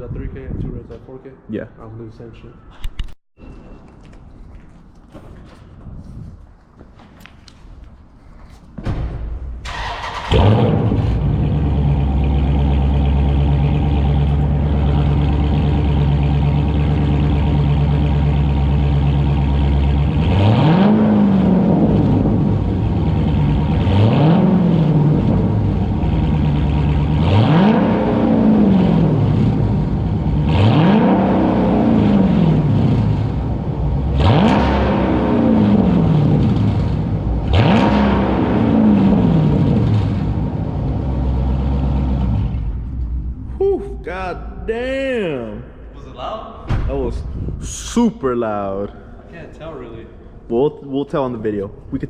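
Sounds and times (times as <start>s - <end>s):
loud car engine idling and revving: 9.7s - 43.6s.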